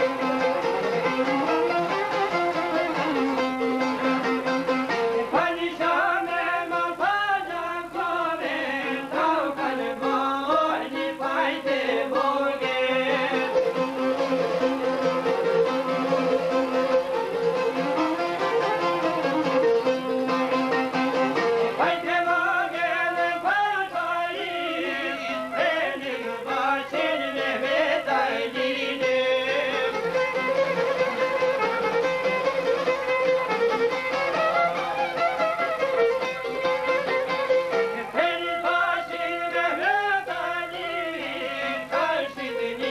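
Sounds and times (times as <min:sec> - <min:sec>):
plucked strings: 0:00.0 - 0:06.9, 0:07.9 - 0:39.9
ornamented folk melody: 0:00.0 - 0:42.9.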